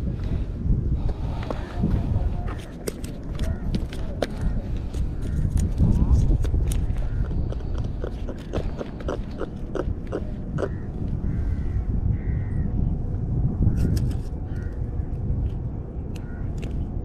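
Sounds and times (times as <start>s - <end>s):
steady low rumble: 0.0s - 17.0s
crow cawing: 10.6s - 12.6s, 14.5s - 14.8s, 16.2s - 16.5s.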